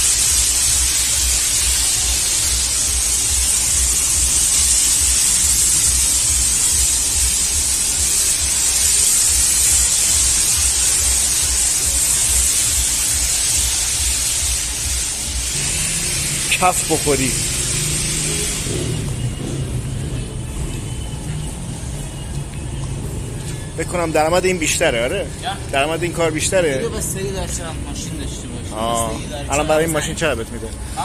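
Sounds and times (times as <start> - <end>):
pressure washer spraying water: 0.0 - 28.8
low rumble: 14.7 - 29.3.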